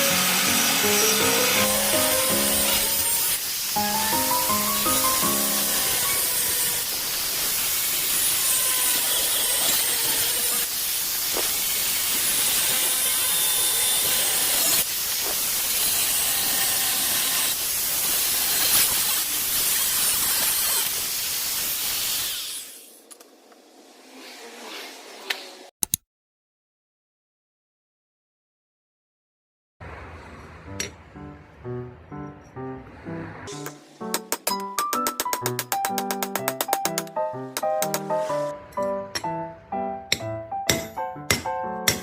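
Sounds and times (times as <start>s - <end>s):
loud hissing noise: 0.0s - 6.2s.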